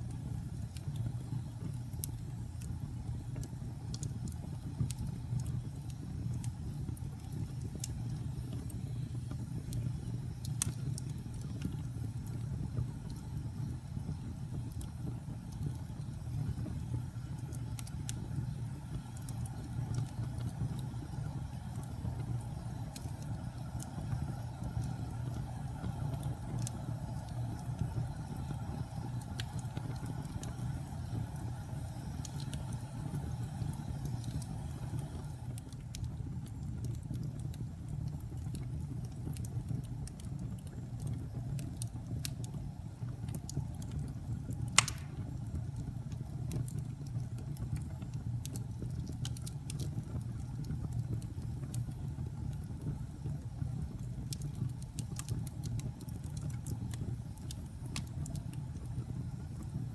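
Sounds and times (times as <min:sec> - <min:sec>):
wood fire crackling: 0:00.0 - 0:59.9
loud fire pop: 0:44.8 - 0:45.4.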